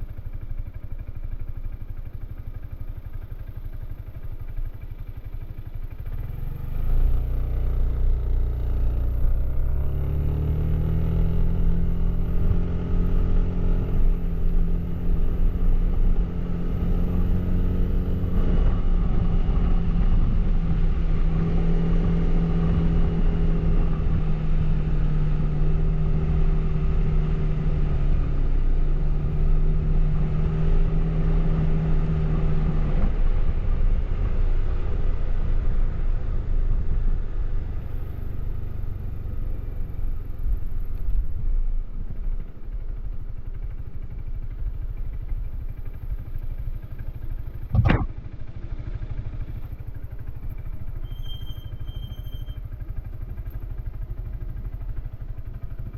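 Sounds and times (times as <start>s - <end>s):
scooter engine running: 0.0s - 9.6s
sharp click: 47.7s - 48.1s.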